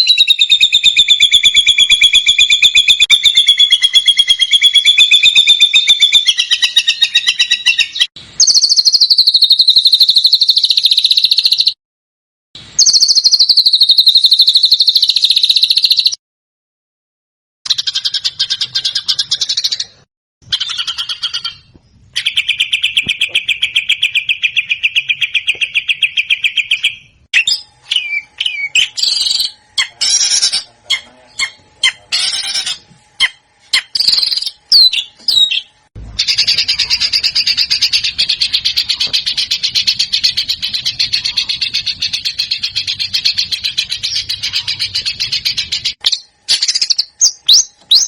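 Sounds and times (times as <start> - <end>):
bird chirps and whistles: 0.0 - 11.8, 12.7 - 16.2, 20.5 - 48.0
songbird fast trills: 0.0 - 11.8.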